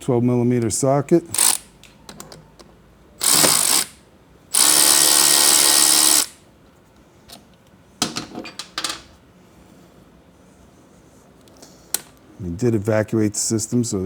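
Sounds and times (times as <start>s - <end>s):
cordless power tool whirring: 3.2s - 6.4s.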